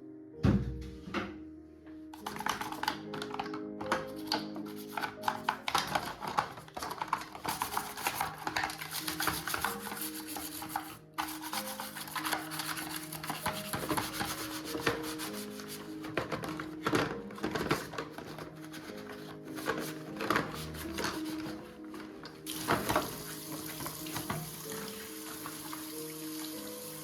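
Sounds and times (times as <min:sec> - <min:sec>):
soft background music: 0:00.0 - 0:27.0
scrubbing strokes on a surface: 0:07.4 - 0:16.7, 0:18.6 - 0:24.3.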